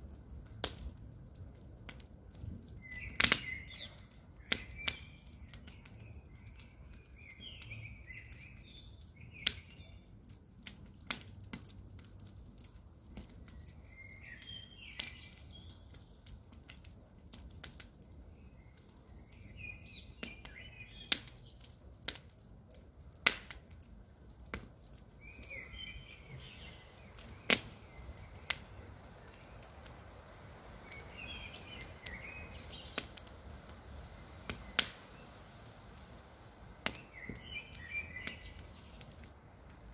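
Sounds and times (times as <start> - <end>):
campfire crackling: 0.0 - 39.9
bird chirps: 2.8 - 10.1, 25.3 - 28.4, 37.0 - 39.1.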